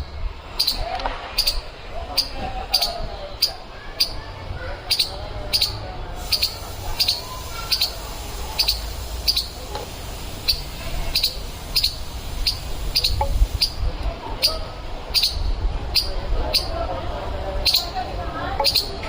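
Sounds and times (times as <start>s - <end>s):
squirrel alarm chirps: 0.6s - 0.8s, 4.9s - 9.7s, 10.4s - 13.8s, 14.4s - 16.8s, 18.6s - 19.0s.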